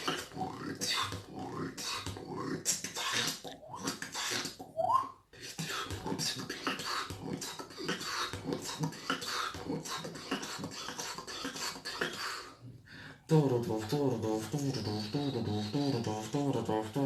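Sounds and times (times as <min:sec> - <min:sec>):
beatboxing: 0:00.0 - 0:17.0.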